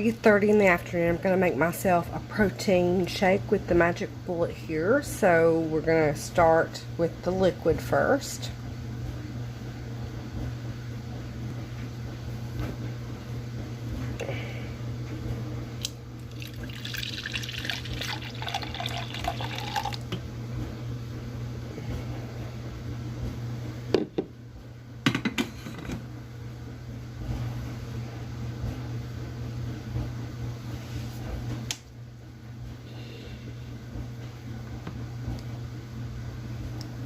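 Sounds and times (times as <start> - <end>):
steady low hum: 0.0 - 37.0
liquid pouring into blender cup: 16.2 - 20.1.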